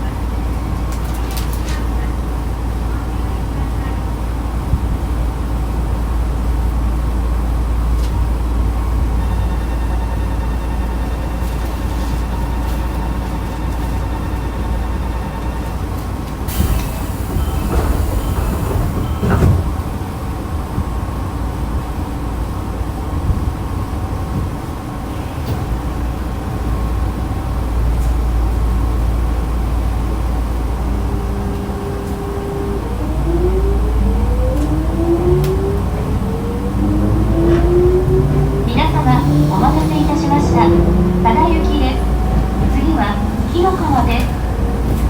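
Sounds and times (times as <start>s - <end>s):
train door closing: 7.9s - 21.9s, 23.2s - 45.0s.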